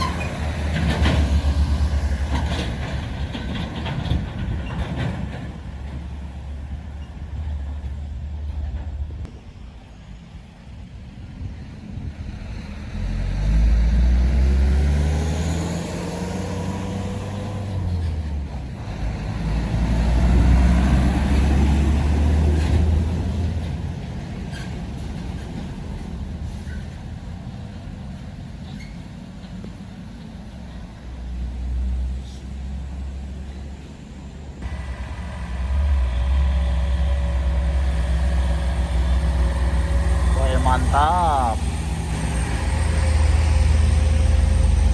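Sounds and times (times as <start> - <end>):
heavy trucks driving past: 0.0 - 9.3, 10.8 - 33.8, 34.5 - 44.9
rising whine: 34.6 - 44.9.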